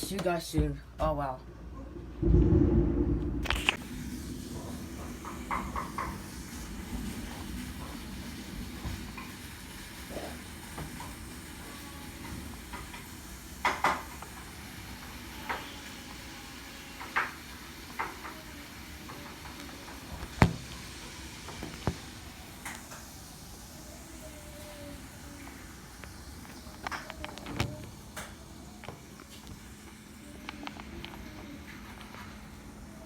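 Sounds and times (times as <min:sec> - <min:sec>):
rain falling: 0:02.2 - 0:31.3
sharp knocks and drips: 0:19.1 - 0:20.9.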